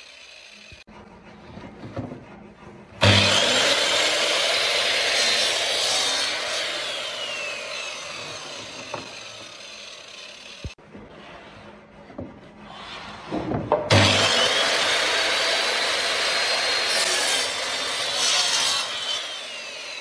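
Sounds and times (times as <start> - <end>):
power tool working wood: 0.0 - 1.4, 3.0 - 10.8, 13.5 - 20.0.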